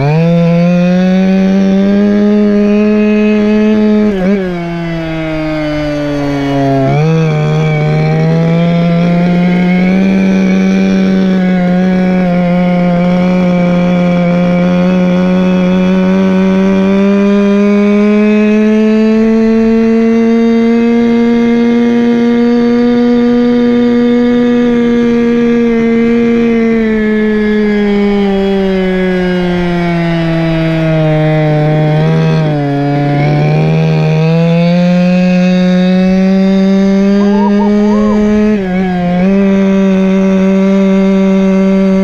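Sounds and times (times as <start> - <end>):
two-stroke engine revving: 0.0 - 26.3.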